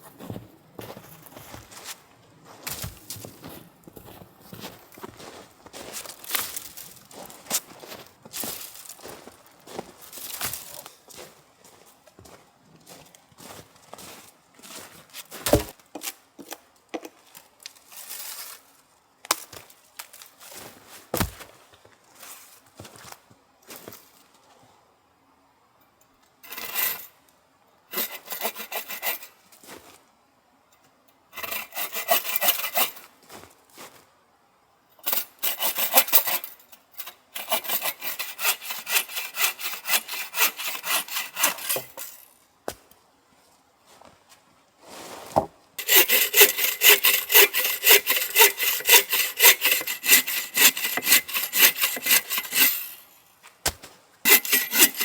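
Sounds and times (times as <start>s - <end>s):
hand saw cutting wood: 15.5s - 15.7s, 26.5s - 27.0s, 27.9s - 29.4s, 31.4s - 33.1s, 35.1s - 42.3s, 45.8s - 53.2s, 54.3s - 55.0s.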